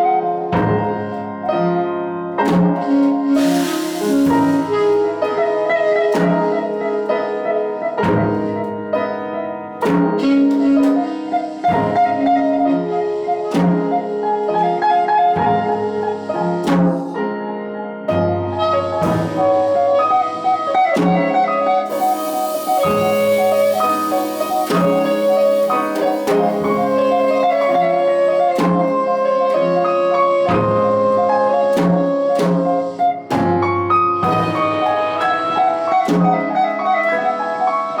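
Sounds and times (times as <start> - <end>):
piano: 0.0 - 38.0
drum kit: 2.4 - 7.2, 8.0 - 9.1, 9.8 - 17.2, 18.4 - 37.6
cymbal wash: 3.4 - 4.9, 21.9 - 28.3
bass: 33.2 - 35.6.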